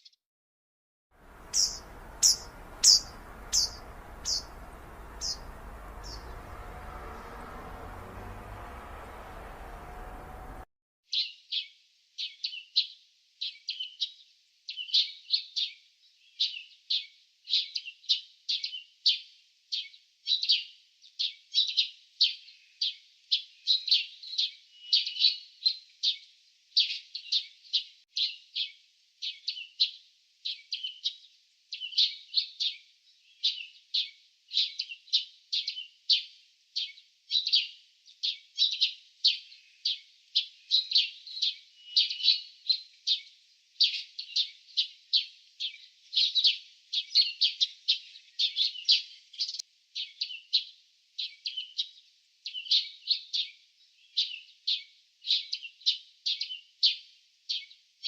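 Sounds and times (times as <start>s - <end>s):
small birds chirping: 1.2s - 11.4s, 23.6s - 58.0s.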